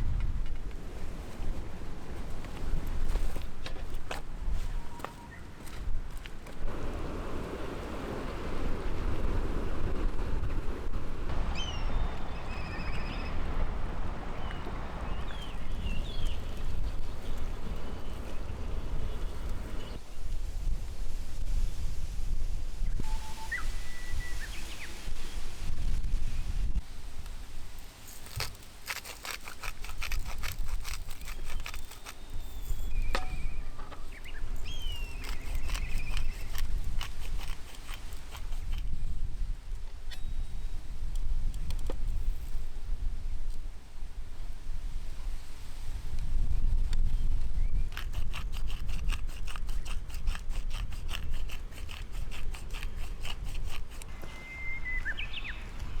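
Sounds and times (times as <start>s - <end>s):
wind rumbling on microphone: 0.0s - 56.0s
bird whistled calls: 11.5s - 13.4s, 23.0s - 24.9s, 31.4s - 36.5s, 54.1s - 55.7s.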